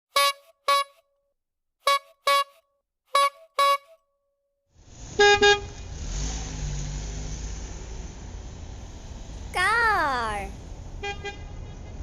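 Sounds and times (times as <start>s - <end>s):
cartoon car horn beeps: 0.2s - 1.0s, 3.2s - 4.0s.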